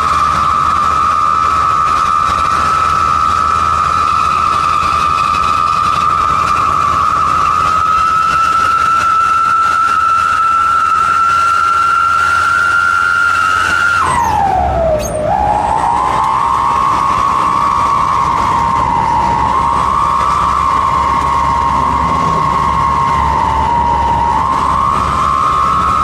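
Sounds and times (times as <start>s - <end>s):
whistling exhaust: 0.0s - 26.0s.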